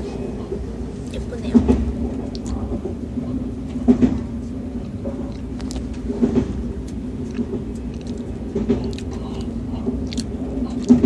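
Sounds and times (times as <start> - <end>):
train knocks: 0.0 - 11.0
train rumbling and humming: 0.0 - 11.0.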